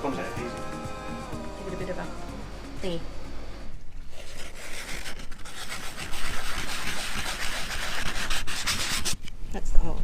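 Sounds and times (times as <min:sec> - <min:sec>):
rubbing on rubber tube: 0:04.0 - 0:09.2.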